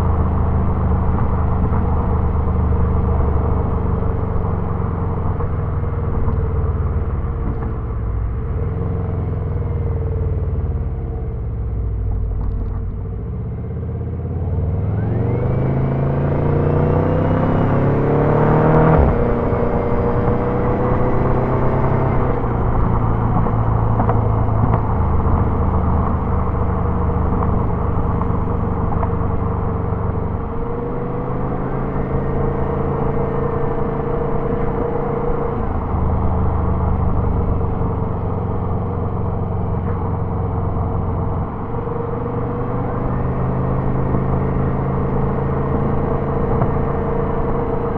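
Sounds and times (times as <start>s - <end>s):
turbocharged car engine revving: 14.2s - 47.9s.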